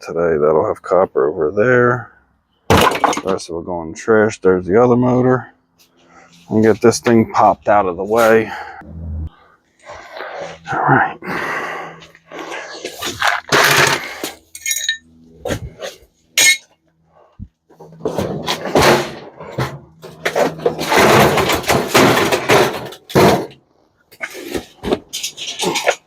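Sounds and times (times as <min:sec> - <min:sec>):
metal rattling and scraping: 0:12.4 - 0:16.8, 0:17.7 - 0:26.0
scrap metal clattering: 0:12.8 - 0:16.8, 0:17.8 - 0:23.6, 0:24.2 - 0:26.0.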